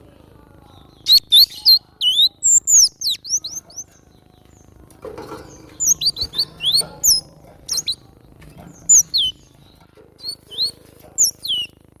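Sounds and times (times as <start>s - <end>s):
bird singing whistled notes: 0.9s - 3.9s, 5.8s - 8.0s, 8.9s - 9.5s, 10.2s - 11.8s.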